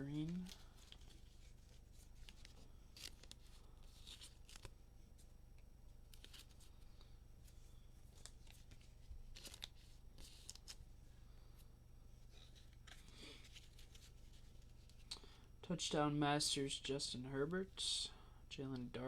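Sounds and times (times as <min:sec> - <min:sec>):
trading cards rustling: 0:00.0 - 0:04.8, 0:06.1 - 0:10.8, 0:12.3 - 0:15.1
steady low hum: 0:00.0 - 0:19.0.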